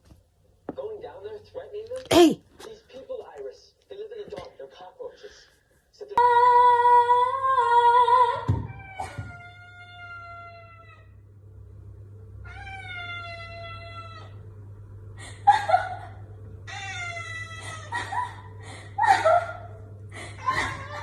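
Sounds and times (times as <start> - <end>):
cat meowing: 12.5 - 14.4.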